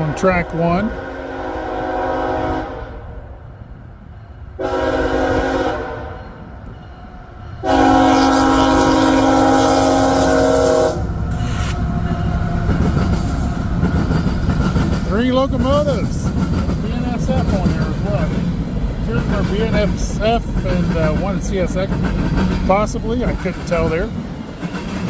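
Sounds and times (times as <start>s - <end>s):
locomotive air horn blasts: 0.0s - 3.0s, 4.6s - 6.2s, 7.6s - 11.6s
train rumbling past: 0.0s - 25.0s
wheels clacking on rail joints: 11.3s - 25.0s.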